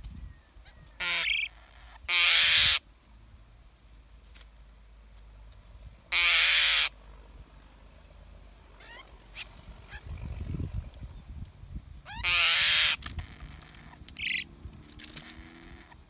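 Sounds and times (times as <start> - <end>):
harsh bird calls: 0.6 - 2.8, 6.1 - 7.0, 8.8 - 10.6, 12.1 - 14.5.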